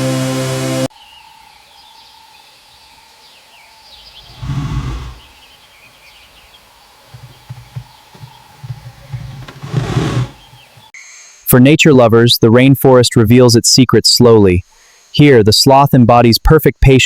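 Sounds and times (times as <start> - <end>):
small birds chirping: 1.0 - 11.0
low animal call: 4.0 - 5.5, 6.1 - 10.9.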